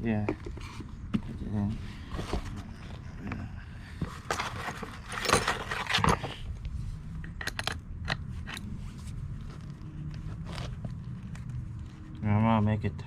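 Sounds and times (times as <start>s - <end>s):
metal parts scraping: 4.2s - 6.5s.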